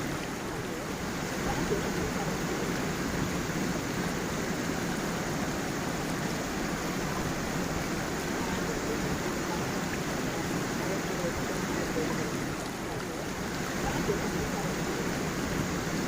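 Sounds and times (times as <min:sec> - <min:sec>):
small waterfall rushing: 0:00.0 - 0:16.0.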